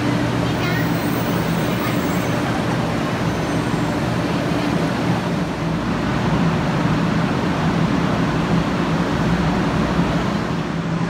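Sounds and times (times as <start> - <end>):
train arriving with low hum: 0.0 - 11.0.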